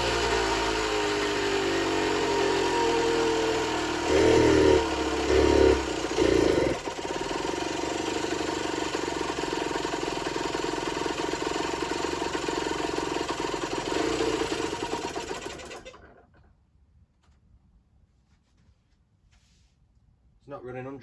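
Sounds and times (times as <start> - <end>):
two-stroke engine idling: 0.0 - 16.3.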